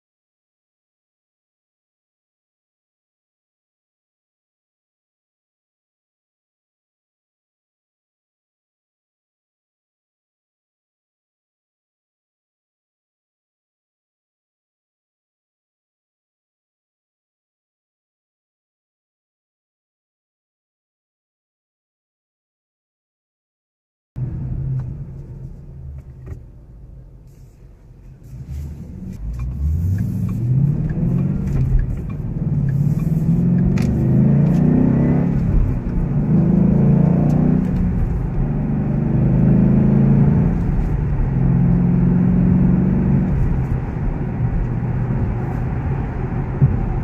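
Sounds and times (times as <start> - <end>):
car engine accelerating hard: 28.1 - 47.0.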